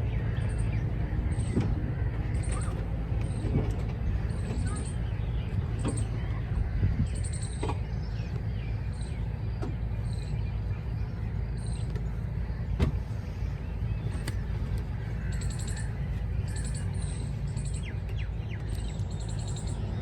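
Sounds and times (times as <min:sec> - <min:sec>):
small birds chirping: 0:00.0 - 0:20.0
steady low rumble: 0:00.0 - 0:20.0.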